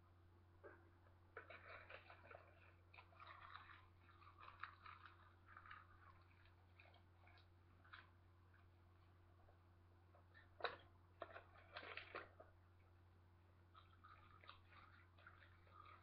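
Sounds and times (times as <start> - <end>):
crackling of seaweed being chewed: 1.4 - 8.8, 10.2 - 12.6, 13.7 - 16.0.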